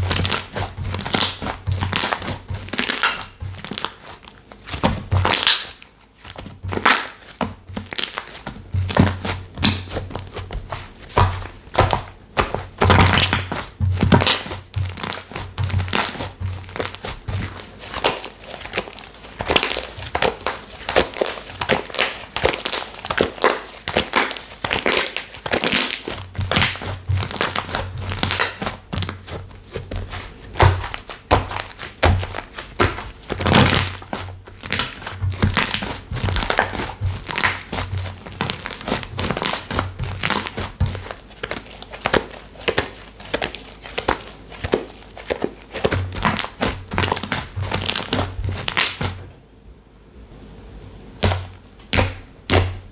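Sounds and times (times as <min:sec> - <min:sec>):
slime squeezed crackling: 0:00.0 - 0:49.2.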